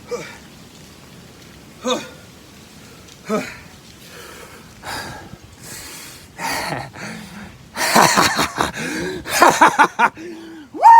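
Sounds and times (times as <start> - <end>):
man gasping breaths: 3.3 - 7.6, 8.6 - 9.4.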